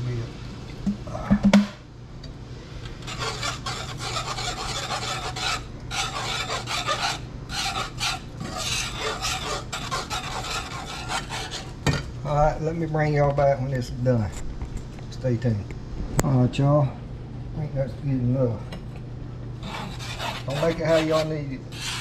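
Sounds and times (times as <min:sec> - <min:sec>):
steady low hum: 0:00.0 - 0:22.0
whisk scraping a pan: 0:02.9 - 0:11.8, 0:19.6 - 0:22.0.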